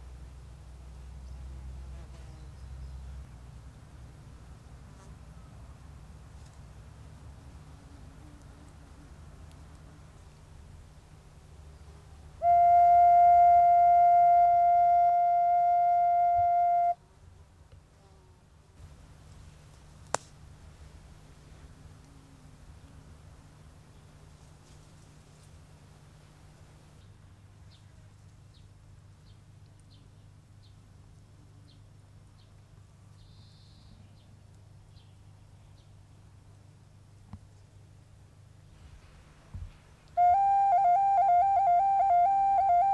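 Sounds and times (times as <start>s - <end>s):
ocarina holding steady note: 11.8s - 17.0s, 40.1s - 42.9s
faint bird chirps: 33.1s - 34.3s.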